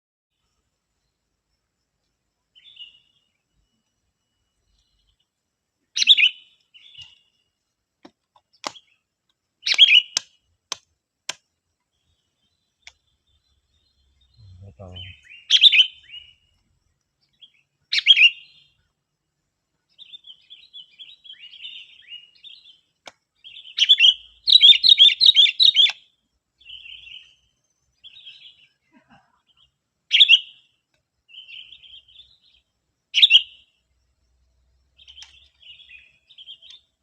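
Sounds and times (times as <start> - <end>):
bird chirping: 0.4 - 37.0
soft bird twittering: 2.5 - 7.6, 8.4 - 10.5, 11.8 - 18.9, 19.8 - 28.8, 29.4 - 37.0.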